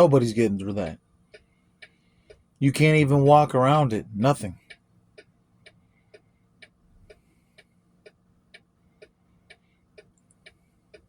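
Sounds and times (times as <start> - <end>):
steady low hum: 0.0 - 11.0
indicator relay ticking: 1.3 - 3.0, 4.6 - 11.0.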